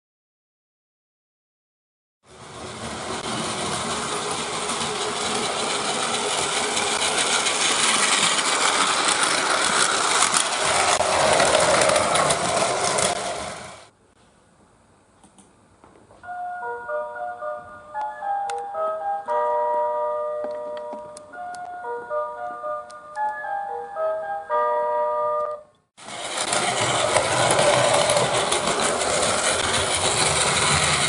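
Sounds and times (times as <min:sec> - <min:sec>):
toy train motor whirring: 0:02.6 - 0:13.8, 0:26.0 - 0:31.0.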